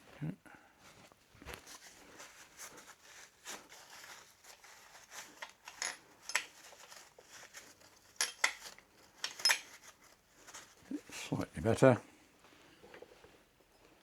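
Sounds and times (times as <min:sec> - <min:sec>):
metal tools clinking: 0:05.6 - 0:06.9, 0:08.2 - 0:09.8.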